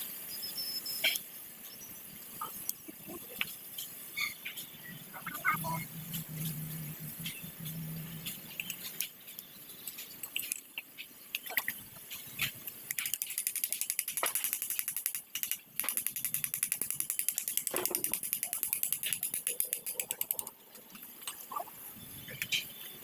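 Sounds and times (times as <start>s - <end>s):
ratchet wrench clicking: 12.9s - 20.5s.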